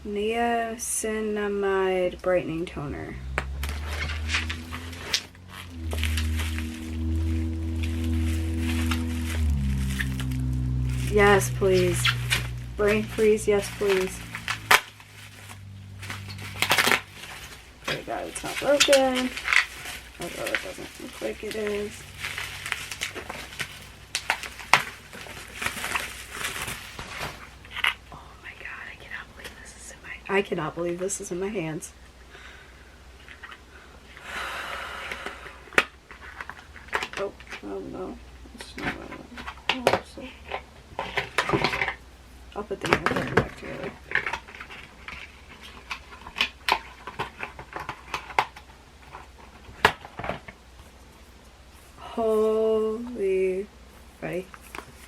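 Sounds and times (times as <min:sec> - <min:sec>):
packaging rustling and crinkling: 0:03.4 - 0:11.0, 0:13.8 - 0:28.0.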